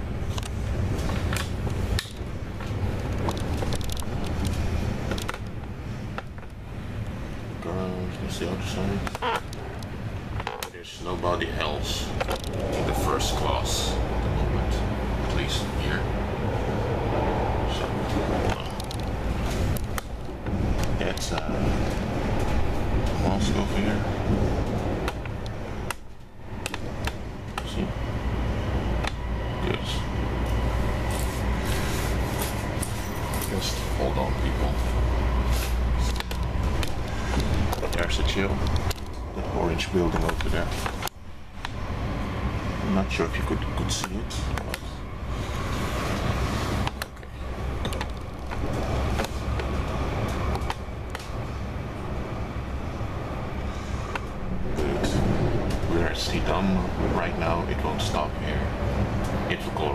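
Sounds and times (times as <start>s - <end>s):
train rumbling inside carriage: 0.0s - 59.9s
sharp clicks and rattles: 0.3s - 7.2s, 12.1s - 12.8s, 17.8s - 23.2s, 36.0s - 39.2s, 46.8s - 51.4s.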